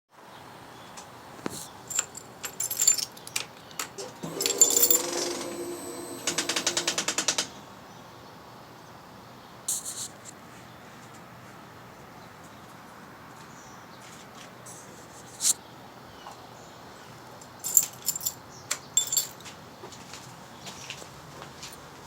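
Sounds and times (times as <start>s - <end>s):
steady whirring hum: 3.5s - 9.5s.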